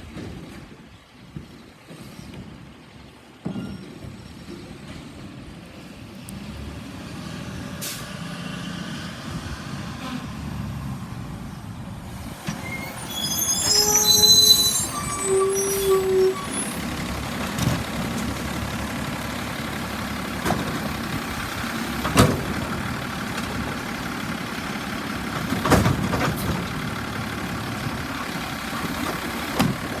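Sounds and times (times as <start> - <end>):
garbage truck engine running: 7.8 - 30.0.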